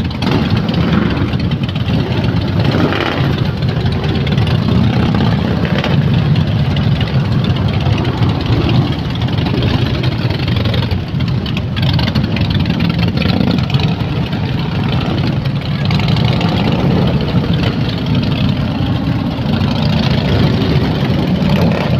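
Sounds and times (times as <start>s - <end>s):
motorcycle engines idling: 0.0s - 21.9s.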